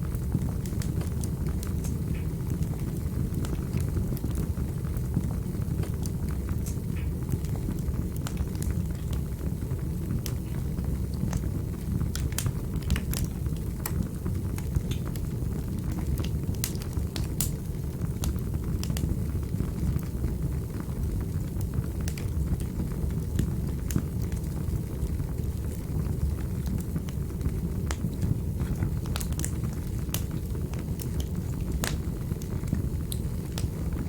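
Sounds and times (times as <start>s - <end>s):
fire crackles and pops: 0.0s - 34.0s
fire roaring in fireplace: 0.0s - 34.0s.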